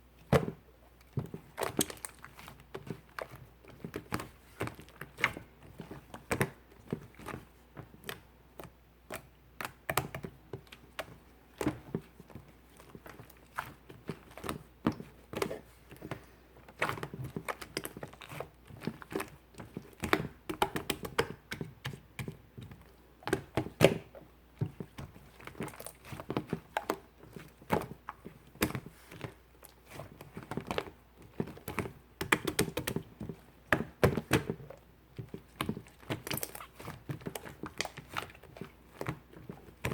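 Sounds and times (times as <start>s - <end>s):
hands squishing slime: 0.0s - 39.9s.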